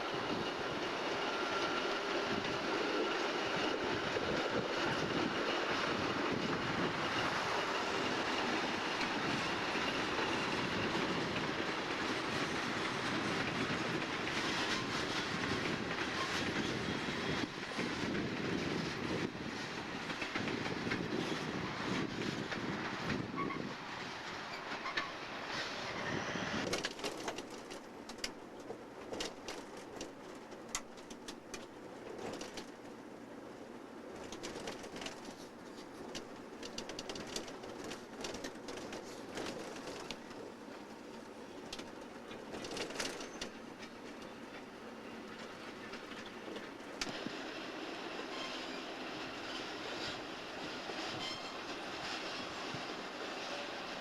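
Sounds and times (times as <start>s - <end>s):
train wheels rumbling on rails: 0.0s - 54.0s
wheels clicking over rail joints: 1.6s - 54.0s
faint wheel squeal: 23.2s - 26.6s, 48.2s - 50.2s, 50.8s - 53.8s.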